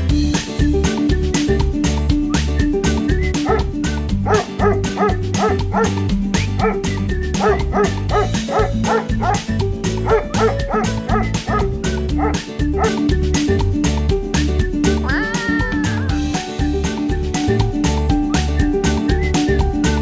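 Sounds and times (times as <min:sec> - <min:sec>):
upbeat background music: 0:00.0 - 0:20.0
dog barking: 0:03.4 - 0:06.0, 0:06.6 - 0:09.4, 0:10.0 - 0:13.0.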